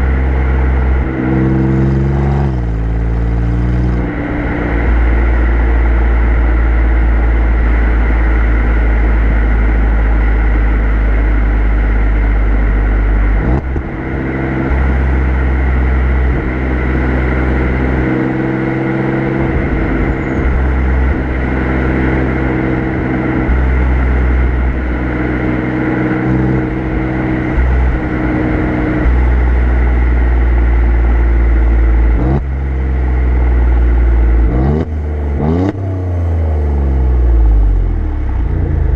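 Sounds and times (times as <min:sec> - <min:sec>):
car engine exhaust cruising: 0:00.0 - 0:38.9.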